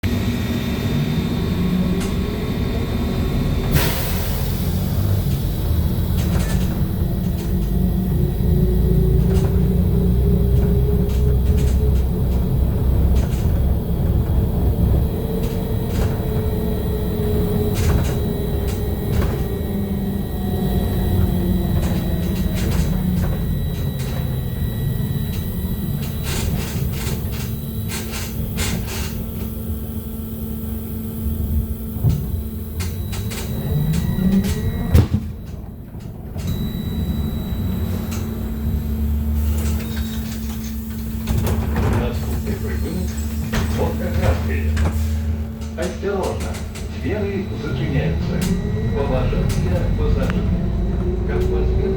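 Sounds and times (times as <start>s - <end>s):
trolleybus cabin rumble: 0.0s - 51.9s
electric drive whine: 0.1s - 51.9s
body clicks and rattles: 9.1s - 14.6s.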